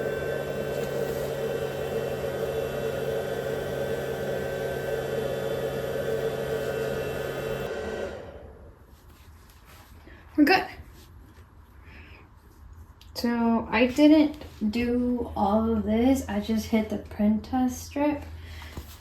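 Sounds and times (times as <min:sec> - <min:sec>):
printer mechanical hum: 0:00.0 - 0:08.5.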